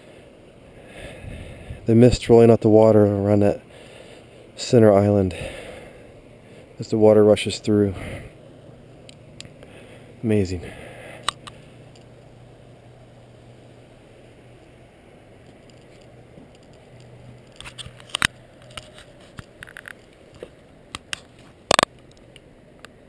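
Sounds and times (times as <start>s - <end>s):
sharp clicks and knocks: 15.4s - 23.0s.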